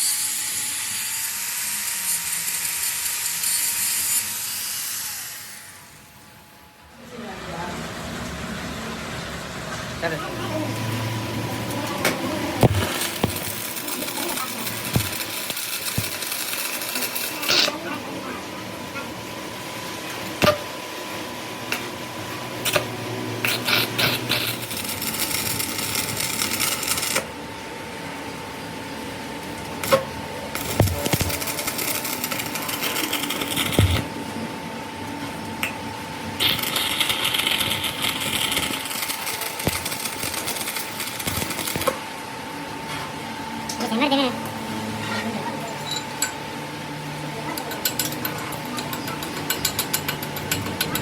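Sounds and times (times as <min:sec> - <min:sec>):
power tool working metal: 0:00.0 - 0:06.3, 0:10.5 - 0:18.4, 0:21.7 - 0:27.3, 0:29.6 - 0:34.1, 0:36.4 - 0:42.0, 0:47.5 - 0:51.0
steady machine hum: 0:05.4 - 0:51.0.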